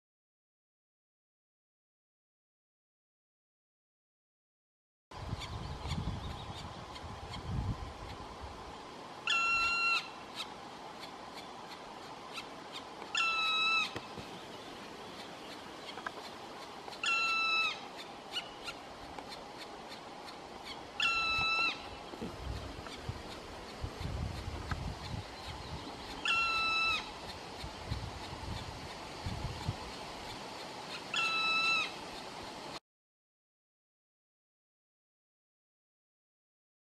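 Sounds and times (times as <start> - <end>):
woodpecker calling: 5.3 - 8.2, 9.2 - 32.5.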